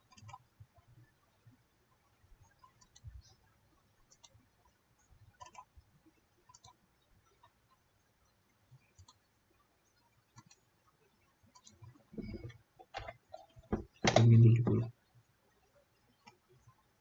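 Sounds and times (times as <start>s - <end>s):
computer mouse clicking: 0.0s - 0.5s, 2.4s - 3.4s, 4.0s - 4.4s, 5.3s - 5.8s, 6.4s - 7.8s, 8.7s - 9.3s, 10.3s - 10.7s, 11.5s - 14.9s, 16.2s - 16.8s
soft low noise: 0.0s - 17.0s.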